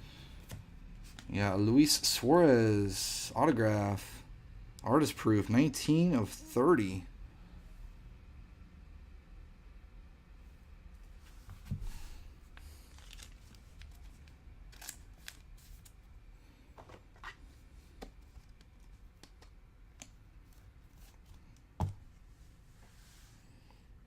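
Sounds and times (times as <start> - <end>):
cards and wrappers rustling: 12.5 - 16.0.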